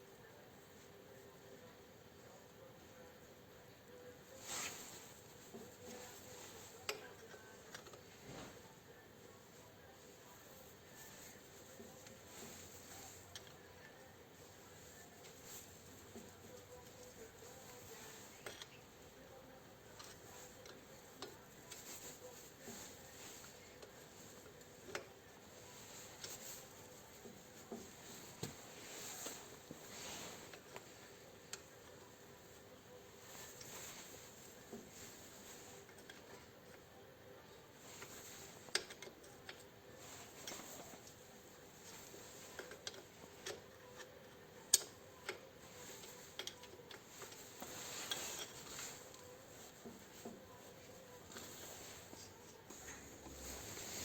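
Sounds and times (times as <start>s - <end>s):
low hiss: 0.0s - 54.0s
faint clicks and light taps: 14.8s - 25.3s, 37.8s - 53.5s.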